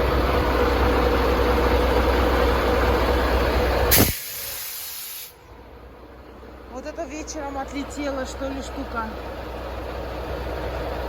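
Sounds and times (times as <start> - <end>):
diesel truck engine droning: 0.0 - 11.0
loud air hiss: 3.9 - 5.4.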